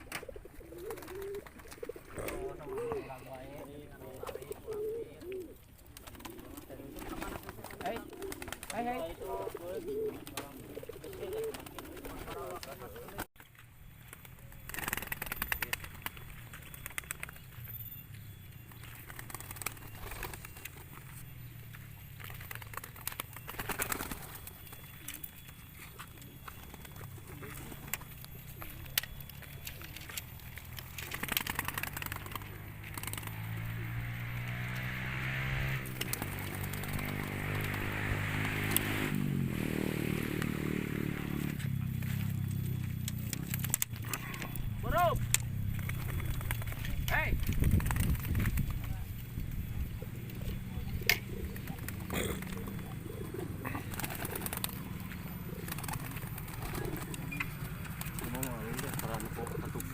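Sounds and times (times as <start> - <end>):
pigeons cooing: 0.0 - 13.3, 22.2 - 42.4, 45.7 - 59.9
motorcycle engine running: 27.8 - 59.9.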